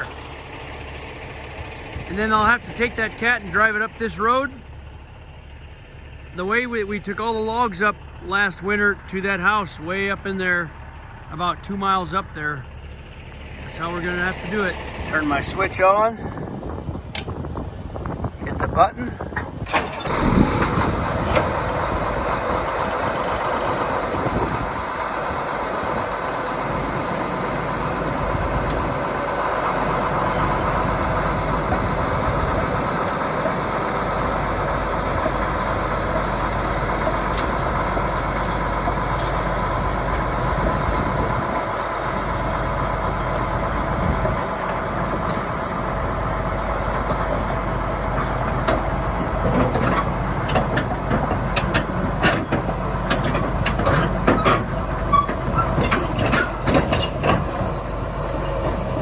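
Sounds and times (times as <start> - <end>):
diesel engine starting and running: 0.0 - 59.0.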